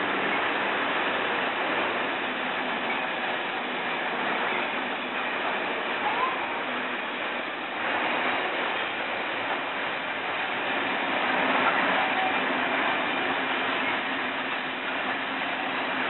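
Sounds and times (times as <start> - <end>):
freight wagons rumbling clatter: 0.0 - 16.0
wheels squealing: 5.7 - 7.0, 11.4 - 16.0.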